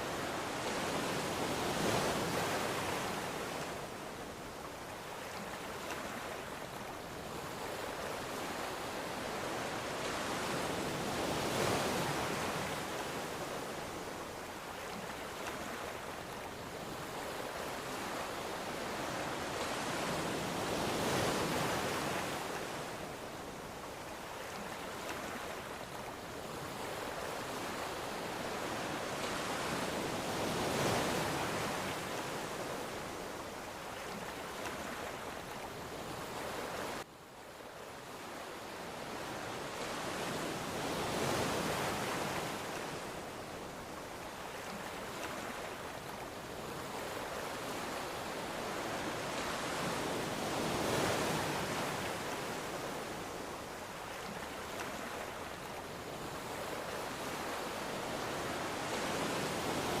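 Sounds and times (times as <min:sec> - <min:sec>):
ocean waves breaking: 0:38.2 - 1:00.0.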